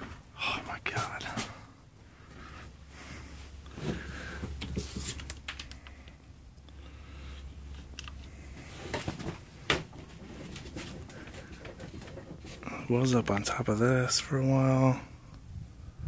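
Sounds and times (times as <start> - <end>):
low steady hum: 0.0 - 16.0
rustling handling noises: 2.2 - 6.1, 7.2 - 13.5.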